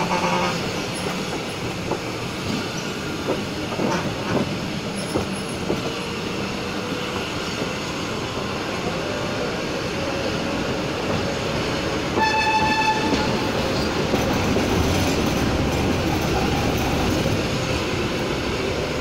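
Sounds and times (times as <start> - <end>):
locomotive horn toot: 0.0 - 0.7, 12.2 - 13.5
train wheels rumbling on track: 0.0 - 19.0.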